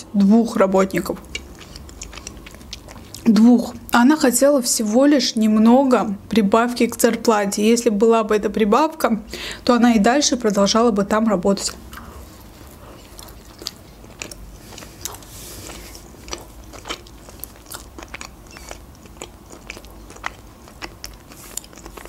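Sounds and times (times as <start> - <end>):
person chewing with mouth clicks: 1.1 - 3.8, 11.7 - 22.0.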